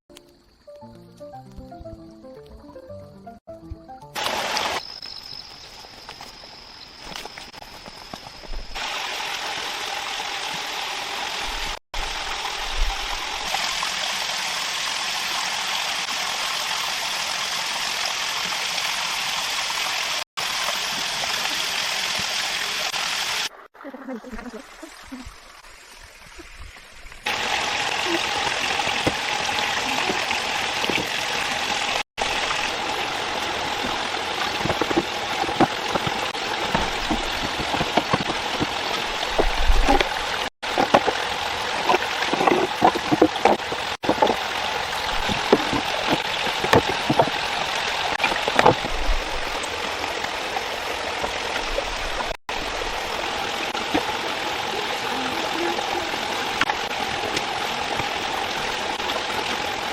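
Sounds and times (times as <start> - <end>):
stream flowing: 4.2 - 59.9.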